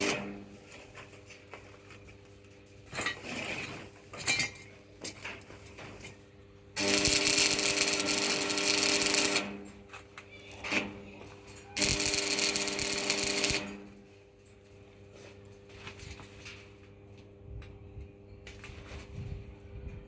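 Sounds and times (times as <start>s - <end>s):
power drill running: 6.8s - 9.6s, 11.8s - 13.7s
tools and metal parts clicking: 11.5s - 13.7s.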